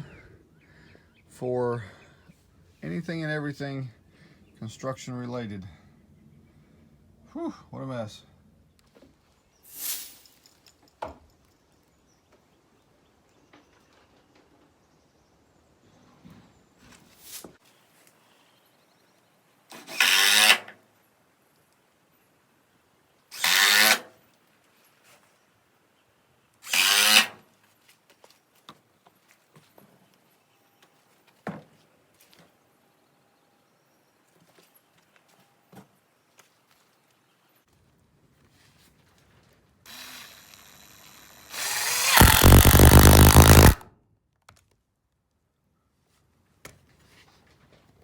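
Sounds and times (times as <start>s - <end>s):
cordless drill bursts: 39.9s - 43.8s.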